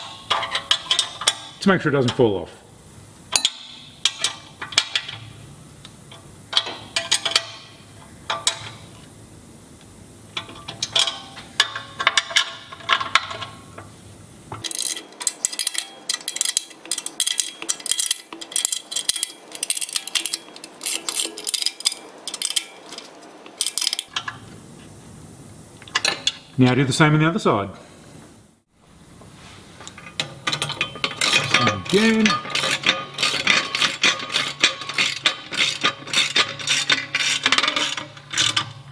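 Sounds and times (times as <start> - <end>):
metal tools clinking on bolts: 0.0 - 2.3, 3.3 - 5.4, 6.1 - 9.0, 10.4 - 13.9, 14.5 - 24.5, 25.8 - 26.6, 29.8 - 38.9.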